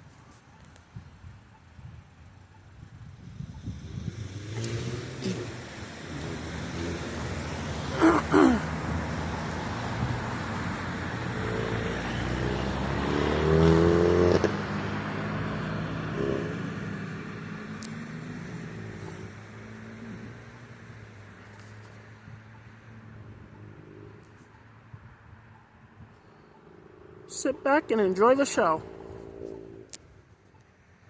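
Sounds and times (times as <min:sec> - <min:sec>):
car passing by: 0:03.4 - 0:24.4, 0:26.4 - 0:29.9.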